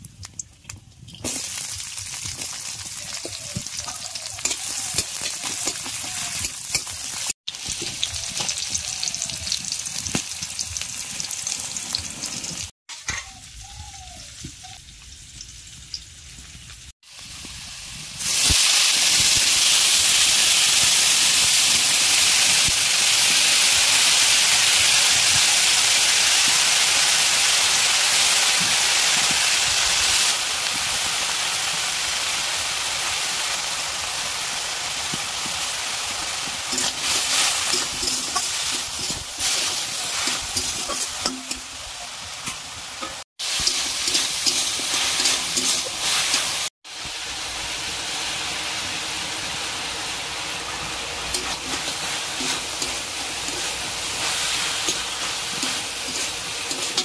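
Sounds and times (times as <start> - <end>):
vegetables sizzling in hot oil: 0.0 - 57.0
metal spatula scraping wok: 3.0 - 8.7, 36.2 - 46.7, 50.7 - 57.0.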